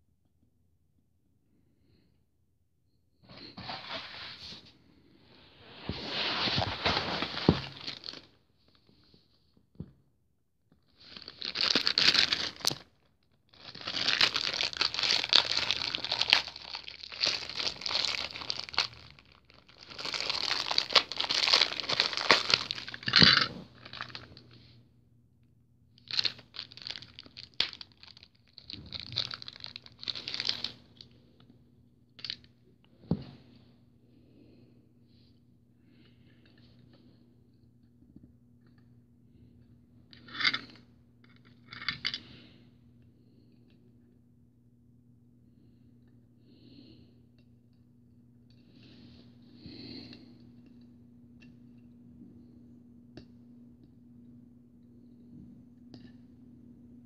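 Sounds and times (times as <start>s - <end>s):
packaging crinkling and tearing: 6.3s - 8.4s, 11.0s - 24.4s, 26.0s - 31.1s.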